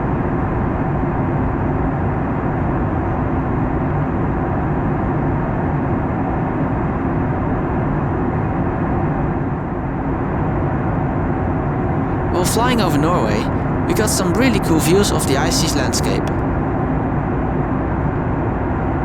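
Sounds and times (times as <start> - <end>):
airplane cabin noise: 11.9 - 16.8
faint low hum: 11.9 - 16.8.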